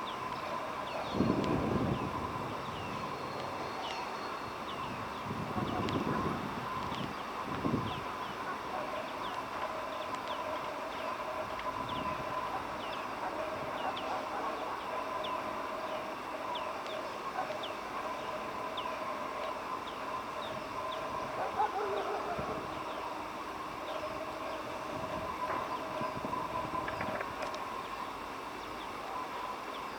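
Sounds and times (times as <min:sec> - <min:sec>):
background drone: 0:00.0 - 0:29.9.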